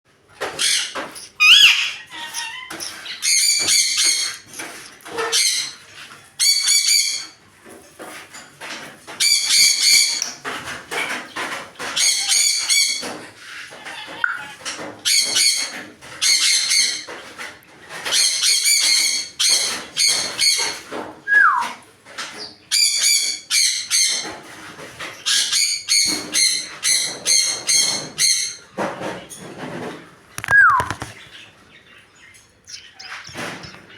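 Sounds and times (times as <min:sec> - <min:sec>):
birds chattering: 0:00.4 - 0:07.3, 0:30.4 - 0:33.9
parrots squawking: 0:00.5 - 0:05.8, 0:32.7 - 0:33.9.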